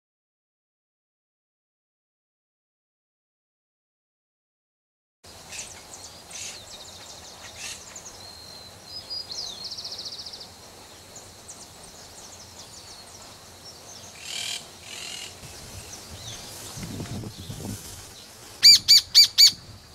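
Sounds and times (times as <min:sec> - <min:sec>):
outdoor ambience: 0:05.2 - 0:19.9
birds chirping: 0:05.3 - 0:19.6
loud bird call: 0:14.1 - 0:15.6, 0:18.6 - 0:19.6
fast high bird trill: 0:18.6 - 0:19.6.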